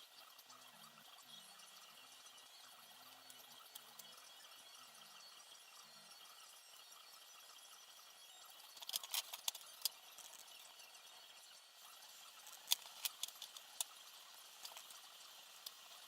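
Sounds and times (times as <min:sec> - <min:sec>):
clicks and taps of small parts: 0:08.7 - 0:10.7, 0:12.4 - 0:14.0, 0:14.6 - 0:15.0.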